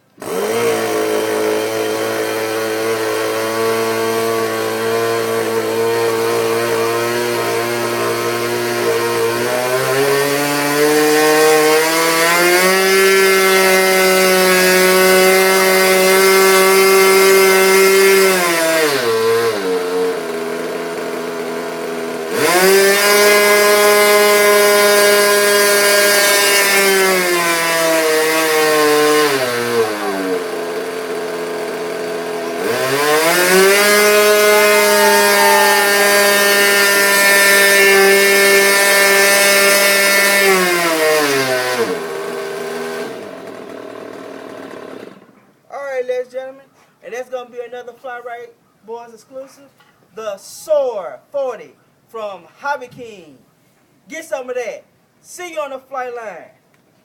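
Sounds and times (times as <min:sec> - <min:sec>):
model airplane engine revving: 0:00.2 - 0:43.6.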